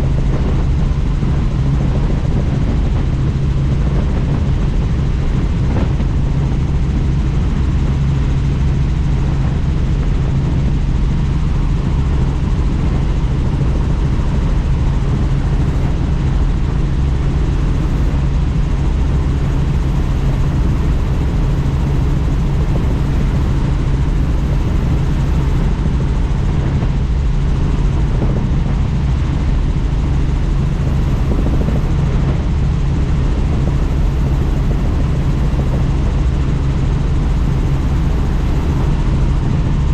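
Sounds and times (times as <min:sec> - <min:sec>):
helicopter rotor and turbine: 0:00.0 - 0:39.9
wind rushing: 0:29.9 - 0:39.9.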